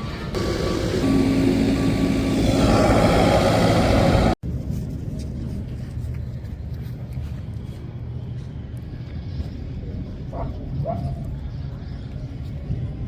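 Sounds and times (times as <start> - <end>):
motor vehicle noise: 0.0 - 4.6.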